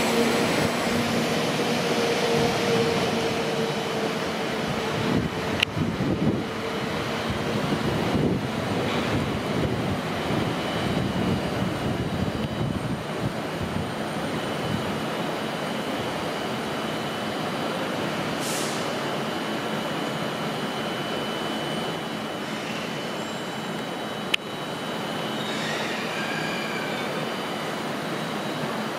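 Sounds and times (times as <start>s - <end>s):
train engine and wheel noise: 0.0s - 28.9s
brief hiss: 18.4s - 19.0s.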